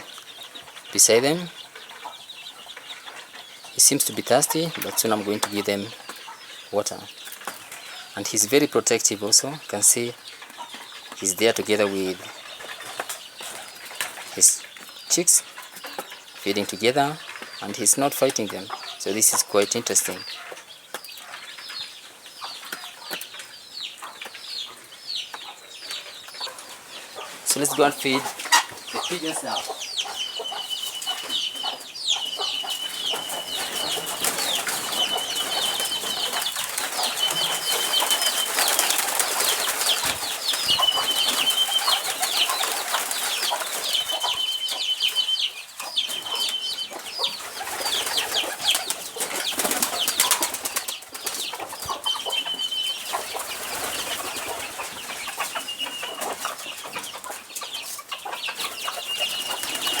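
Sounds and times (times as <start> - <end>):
birds chirping: 0.0 - 60.0
wings flapping: 30.8 - 45.2, 45.8 - 56.7, 58.6 - 60.0.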